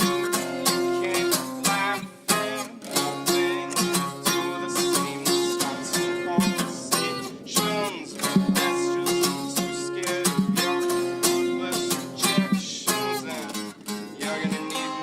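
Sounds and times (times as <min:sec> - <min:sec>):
acoustic guitar picking: 0:00.0 - 0:15.0.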